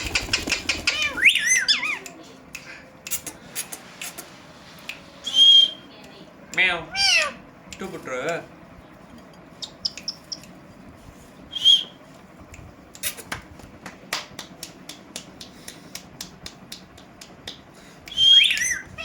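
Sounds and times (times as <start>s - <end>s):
parrots chirping: 0.0s - 2.1s, 6.8s - 7.4s, 9.6s - 10.5s, 18.2s - 19.0s
parrot whistling: 0.9s - 2.0s, 5.2s - 5.9s, 6.9s - 7.4s, 11.5s - 12.0s, 18.1s - 19.0s
sharp clicking taps: 12.5s - 18.7s.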